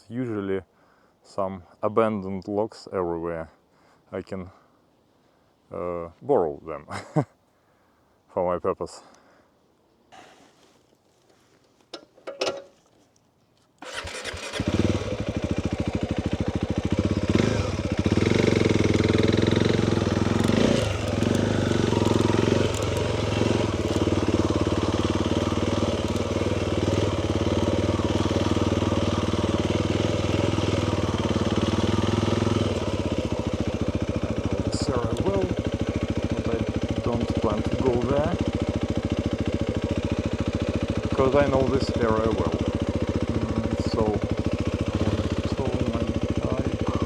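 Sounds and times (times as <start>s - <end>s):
motorcycle engine revving: 13.8s - 47.0s
motorcycle engine starting and idling: 13.8s - 47.0s.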